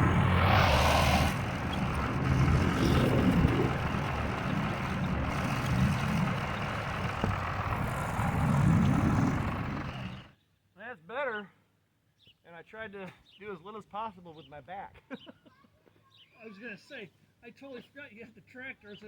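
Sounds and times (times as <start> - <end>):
tractor engine running: 0.0 - 10.3.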